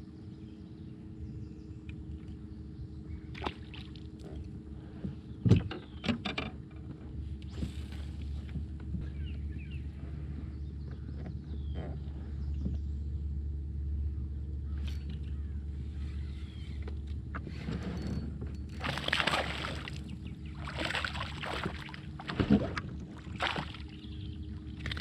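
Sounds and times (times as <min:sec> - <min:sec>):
boat motor humming: 0:00.0 - 0:25.0
water splashing and sloshing: 0:03.3 - 0:04.5, 0:17.6 - 0:25.0.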